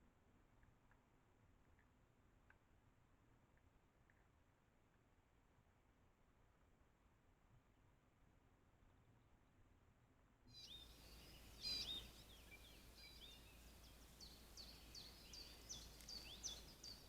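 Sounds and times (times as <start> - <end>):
songbirds chirping: 10.5 - 17.0
low outdoor rumble: 10.7 - 17.0.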